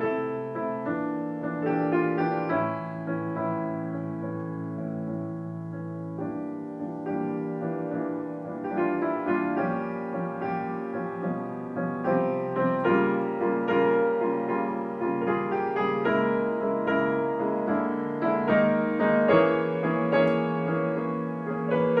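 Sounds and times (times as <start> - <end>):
slow gentle piano: 0.0 - 22.0.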